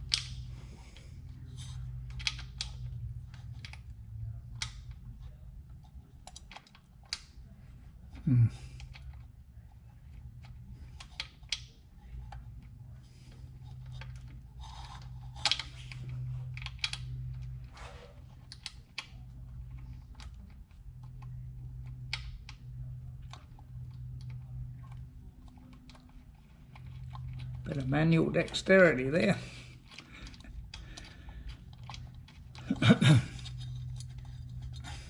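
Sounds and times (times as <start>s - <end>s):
steady low hum: 0.0s - 35.0s
metal parts clicking and clinking: 1.4s - 3.9s, 23.2s - 35.0s.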